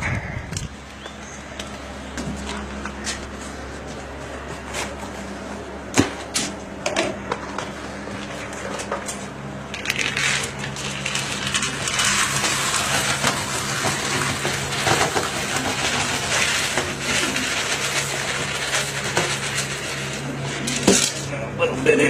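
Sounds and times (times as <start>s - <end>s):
steady low hum: 0.0s - 22.0s
grain rattling as poured: 9.7s - 21.2s.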